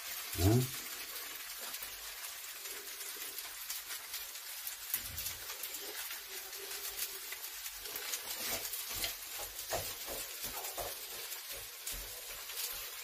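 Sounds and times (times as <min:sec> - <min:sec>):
fried rice sizzling in a pan: 0:00.0 - 0:13.0
person's brief voiced sound: 0:00.4 - 0:00.8.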